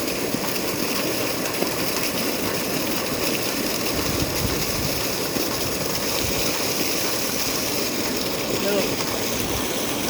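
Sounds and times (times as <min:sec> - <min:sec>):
water flowing: 0:00.0 - 0:10.0.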